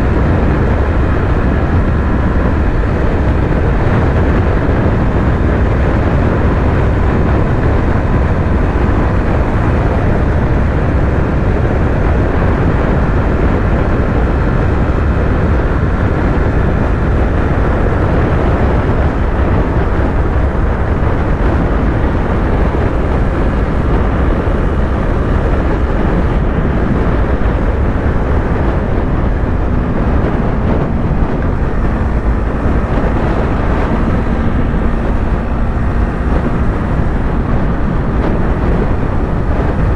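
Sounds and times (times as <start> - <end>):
motorcycle engine cruising: 0.0 - 39.9
wind rush and road noise: 0.0 - 39.9.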